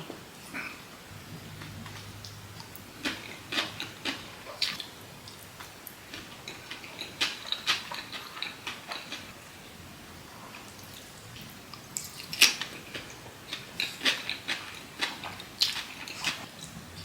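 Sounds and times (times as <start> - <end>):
chewing and mouth clicks: 1.6 - 9.3, 10.5 - 16.8.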